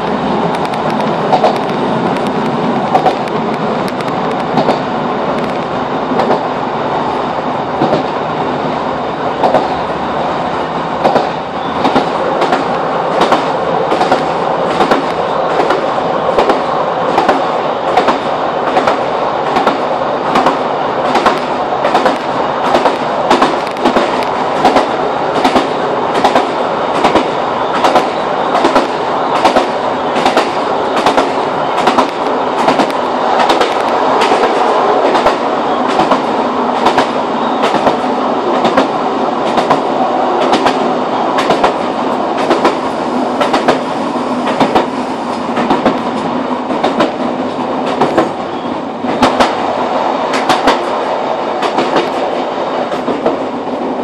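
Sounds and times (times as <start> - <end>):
wheels clacking over rail joints: 0.0 - 6.5, 9.4 - 9.8, 11.0 - 42.8, 43.4 - 48.4
train rumble: 0.0 - 54.0.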